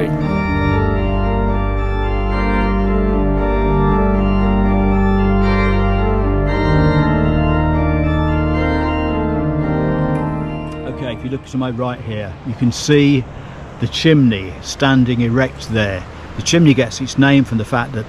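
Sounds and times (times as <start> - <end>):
organ chords: 0.0 - 11.7.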